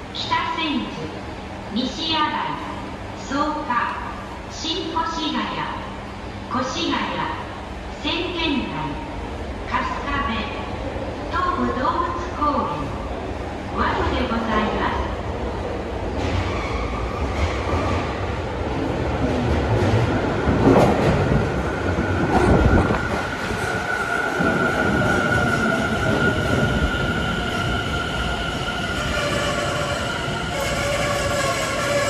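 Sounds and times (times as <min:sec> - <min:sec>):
electric train wheels rumbling: 0:15.4 - 0:32.0.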